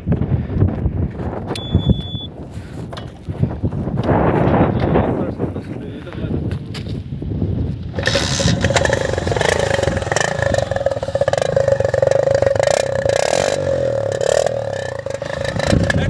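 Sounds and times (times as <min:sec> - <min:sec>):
motorcycle engine revving: 0:07.9 - 0:16.0.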